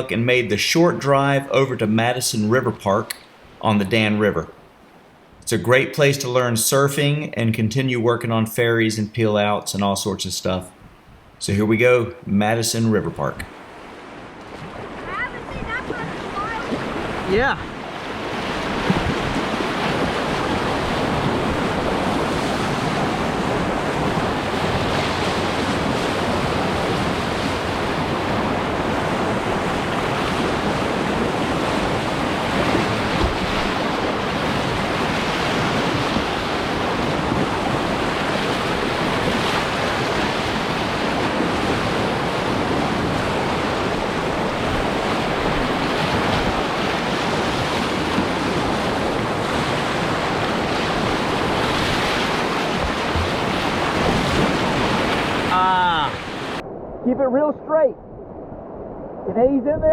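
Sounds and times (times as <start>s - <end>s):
whitewater rushing through rapids: 14.9s - 56.6s.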